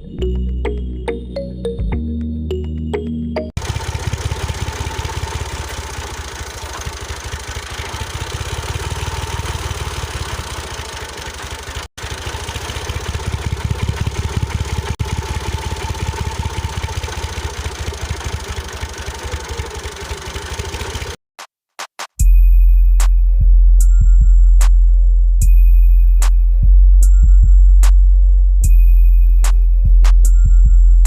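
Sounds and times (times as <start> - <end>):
small electric motor rattling: 3.6 - 21.2.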